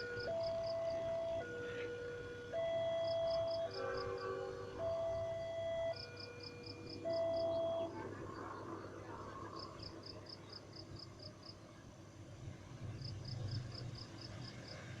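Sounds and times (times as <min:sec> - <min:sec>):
low steady hum: 0:00.0 - 0:15.0
insect chirping: 0:04.9 - 0:11.6.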